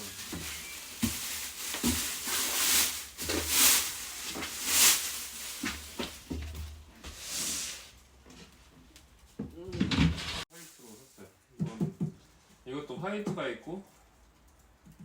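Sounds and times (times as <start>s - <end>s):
cloth rubbing on cabinet: 0.0s - 7.9s.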